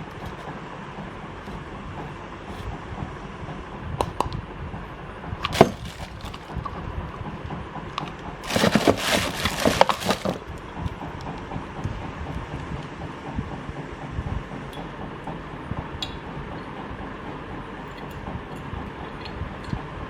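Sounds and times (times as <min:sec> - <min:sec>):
ceiling fan humming: 0:00.0 - 0:20.0
crackling and knocking: 0:05.4 - 0:11.7.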